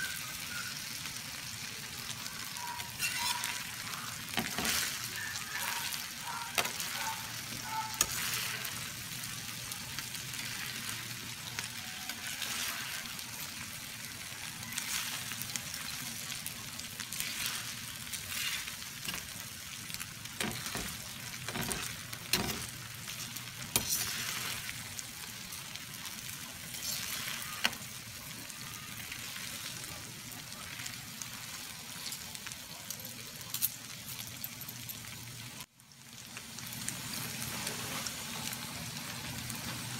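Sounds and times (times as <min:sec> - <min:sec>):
meat sizzling in a metal pan: 0:00.0 - 0:39.9
metal turner scraping a pan: 0:02.8 - 0:08.9, 0:17.1 - 0:19.4, 0:20.3 - 0:24.8.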